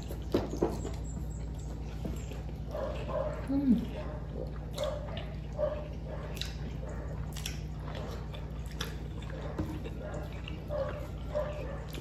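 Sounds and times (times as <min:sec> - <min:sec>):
people chewing food: 0:00.0 - 0:12.0
mouth smacks and clicks: 0:06.2 - 0:10.7.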